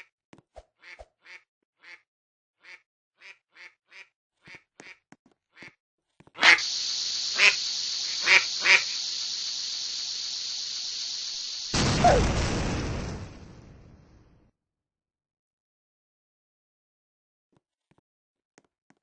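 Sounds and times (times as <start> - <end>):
harsh duck-like bird calls: 6.4 - 9.8
steady hiss: 6.4 - 14.1.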